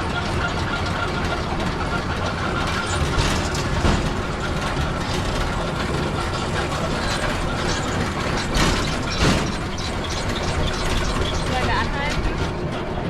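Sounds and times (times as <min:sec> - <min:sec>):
rail bike wheels clattering: 0:00.0 - 0:13.0
loud knocks: 0:02.6 - 0:12.0.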